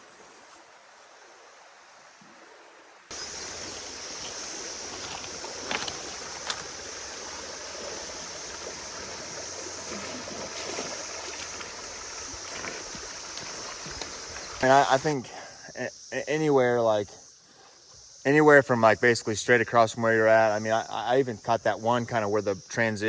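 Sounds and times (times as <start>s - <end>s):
river water running: 0.0s - 15.6s
cicadas droning: 0.2s - 23.0s
sharp clicks or light splashes: 3.5s - 9.0s, 9.9s - 15.0s.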